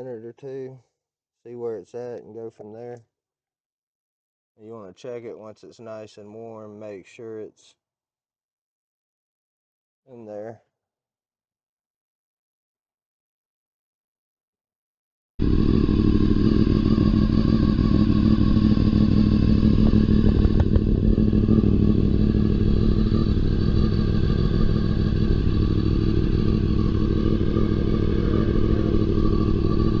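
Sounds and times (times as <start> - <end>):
motorcycle engine idling: 15.4 - 30.0.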